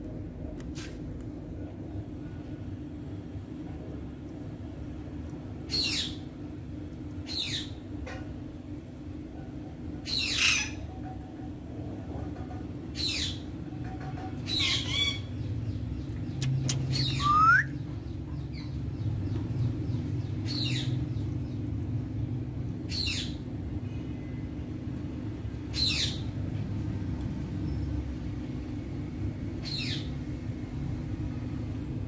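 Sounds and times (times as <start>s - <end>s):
steady low hum: 0.0s - 32.0s
birds squawking: 16.9s - 17.8s
falling whistle: 17.2s - 17.7s.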